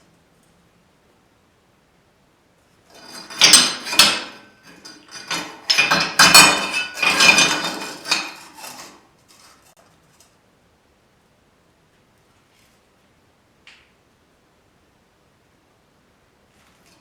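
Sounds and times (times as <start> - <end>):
metal pieces clattering: 3.0 - 8.7.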